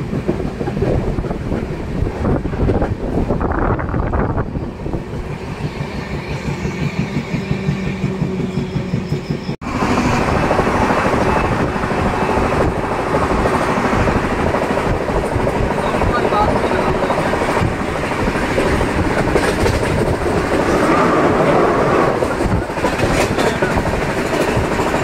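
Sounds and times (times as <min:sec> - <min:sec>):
train wheels rumbling on rails: 0:00.0 - 0:25.0
rushing air: 0:09.5 - 0:25.0.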